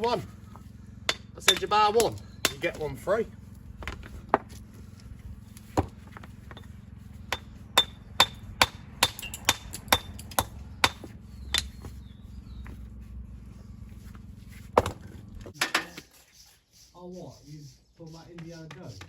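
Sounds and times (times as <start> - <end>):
steady low hum: 0.0 - 15.6
hammer striking stone: 1.1 - 2.8, 7.3 - 11.7.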